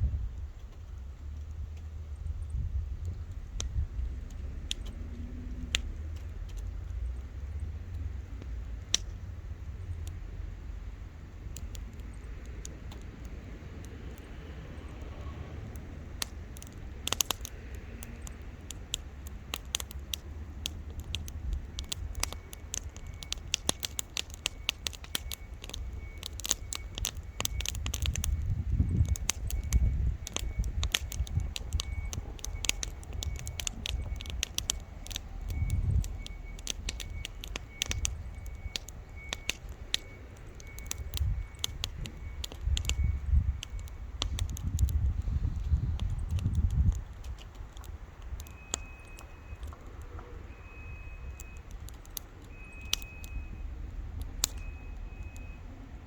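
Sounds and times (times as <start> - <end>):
low rumble: 0.0 - 12.5
campfire crackling and popping: 0.0 - 56.0.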